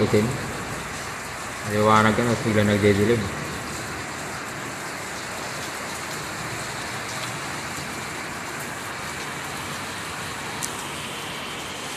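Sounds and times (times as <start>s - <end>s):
raindrop ticks: 0.0s - 9.4s, 10.5s - 11.0s
steady rain hiss: 0.0s - 11.9s.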